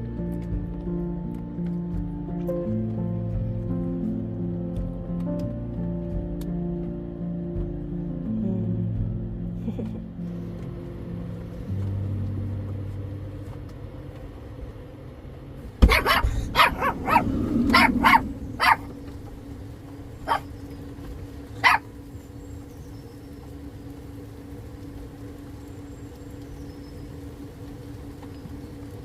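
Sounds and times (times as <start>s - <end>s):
dog growling: 15.8s - 20.5s
small dogs barking: 15.8s - 20.8s, 21.5s - 22.1s.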